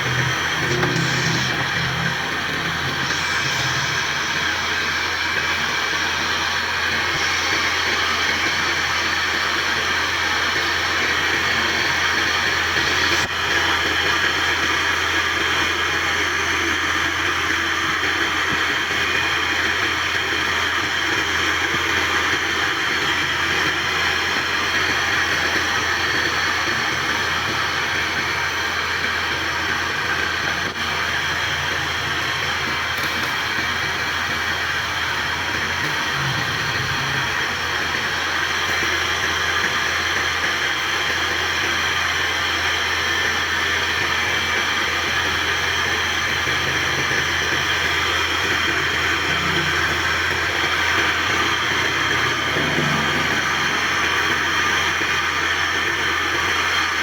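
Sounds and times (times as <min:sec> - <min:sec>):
constant low hum: 0:00.0 - 0:05.7, 0:48.8 - 0:56.5
wood lathe whirring: 0:00.0 - 0:57.0.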